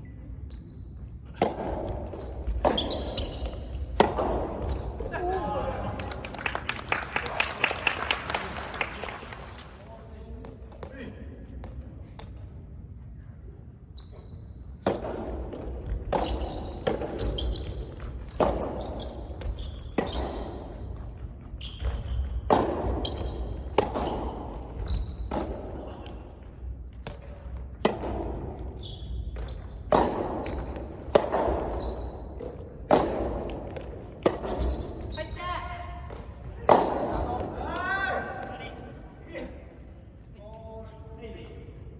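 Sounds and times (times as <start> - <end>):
ball bouncing on court: 0.5 - 6.3, 10.4 - 12.5, 14.1 - 35.3, 35.9 - 38.7
racket hitting tennis ball: 1.3 - 5.1, 14.8 - 17.4, 21.9 - 24.6, 27.1 - 28.6, 29.4 - 31.8, 32.4 - 34.8.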